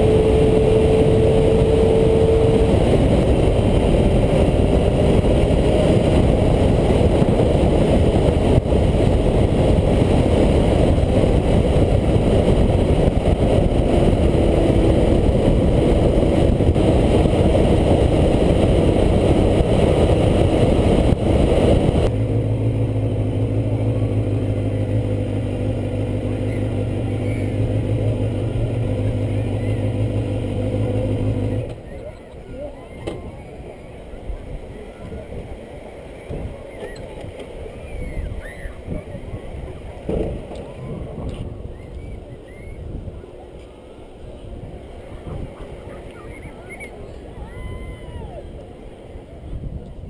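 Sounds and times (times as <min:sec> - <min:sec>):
wind noise rushing: 0:00.0 - 0:22.4
motorcycle engine running hard: 0:00.0 - 0:32.0.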